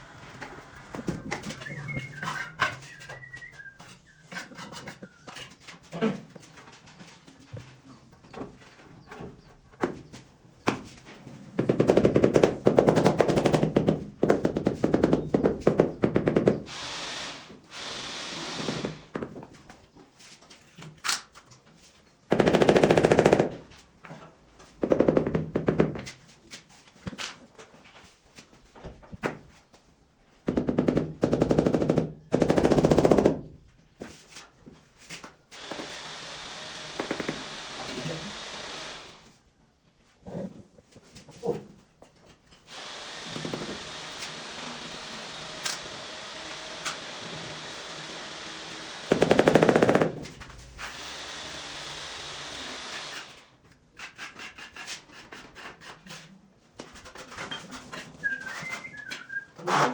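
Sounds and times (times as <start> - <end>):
power tool rattling: 42.7 - 53.5.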